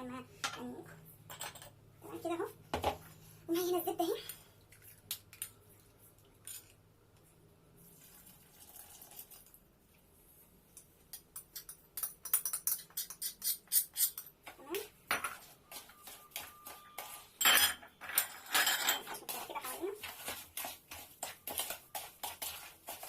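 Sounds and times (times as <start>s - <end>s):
utensils and dishes clinking: 11.2s - 14.3s, 15.1s - 19.9s.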